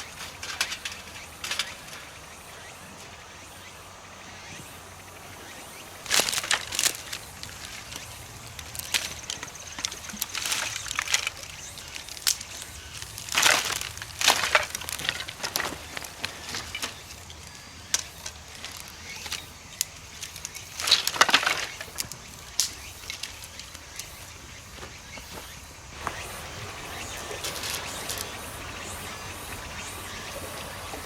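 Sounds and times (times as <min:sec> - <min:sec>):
dry twigs snapping and crunching: 0:06.0 - 0:26.2, 0:27.3 - 0:28.5.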